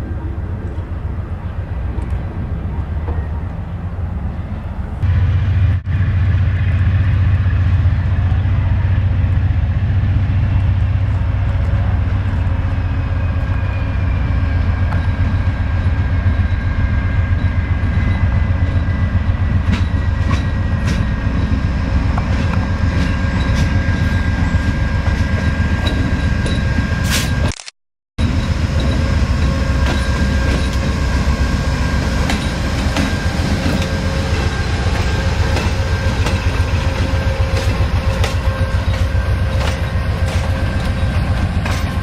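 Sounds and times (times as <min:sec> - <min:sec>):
train rumbling past: 0:00.0 - 0:27.5, 0:28.2 - 0:42.0
train wheel clicks: 0:34.9 - 0:42.0.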